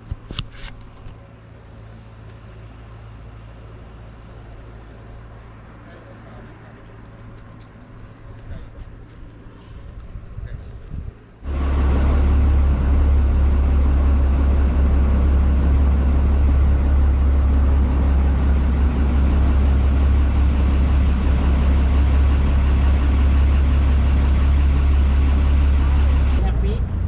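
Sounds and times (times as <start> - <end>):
boat engine droning: 11.4 - 27.0.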